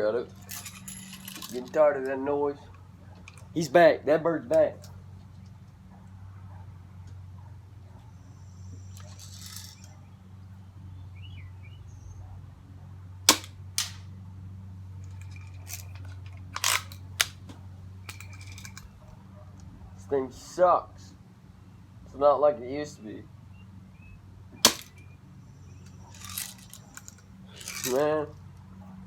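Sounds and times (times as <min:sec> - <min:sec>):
gun clicks and rattles: 0:00.4 - 0:03.6, 0:09.0 - 0:10.0, 0:13.3 - 0:14.0, 0:15.0 - 0:19.0, 0:24.6 - 0:25.0, 0:25.8 - 0:28.2
air gun firing crack: 0:13.3 - 0:14.1, 0:24.6 - 0:25.0.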